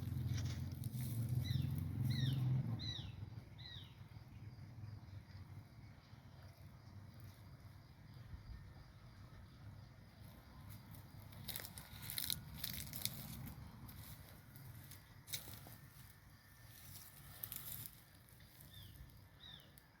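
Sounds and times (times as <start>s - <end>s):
crackling and crunching: 0.0s - 1.4s, 10.7s - 19.2s
low steady rumble: 0.0s - 19.5s
bird chirping: 1.3s - 5.5s, 18.6s - 19.9s.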